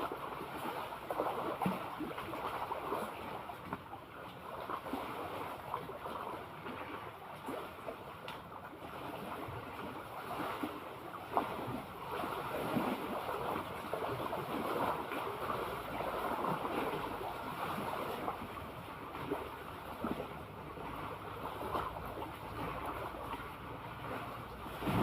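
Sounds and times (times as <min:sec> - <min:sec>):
seawater lapping and splashing: 0:00.0 - 0:25.0.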